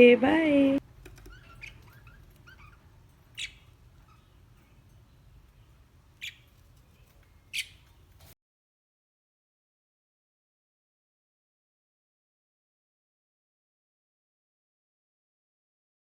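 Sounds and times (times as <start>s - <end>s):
lovebirds chirping: 0.6s - 8.3s.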